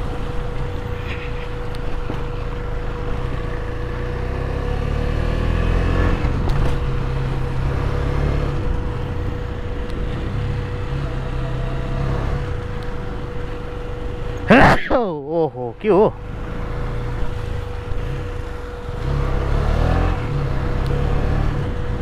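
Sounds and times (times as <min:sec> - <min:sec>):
motorcycle engine revving: 0:03.0 - 0:14.4, 0:16.2 - 0:22.0.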